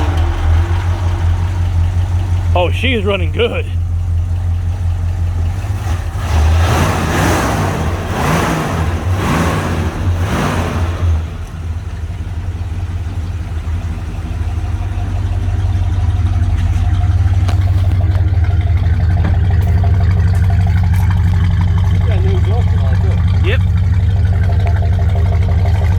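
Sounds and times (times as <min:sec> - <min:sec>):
car engine revving and idling: 0:00.0 - 0:25.9.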